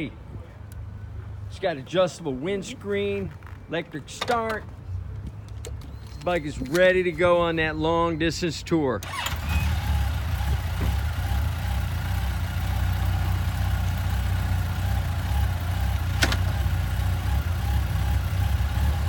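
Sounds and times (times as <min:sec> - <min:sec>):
motorcycle engine idling: 0:09.0 - 0:19.0.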